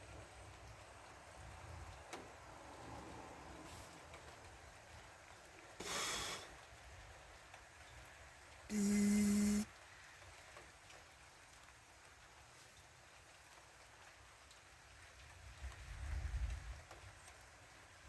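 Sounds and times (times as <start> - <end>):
faint steady rain: 0.0 - 18.0
short loud hiss: 5.8 - 6.5.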